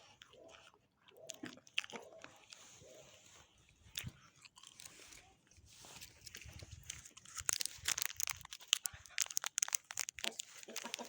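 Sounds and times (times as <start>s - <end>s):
sharp crunching clicks: 6.8s - 11.0s
chickens clucking: 10.2s - 11.0s.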